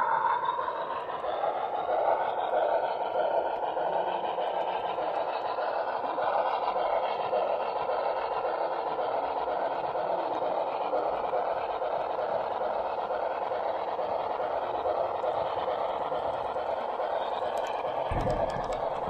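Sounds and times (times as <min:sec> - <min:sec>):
model train whirring: 0:00.0 - 0:19.0.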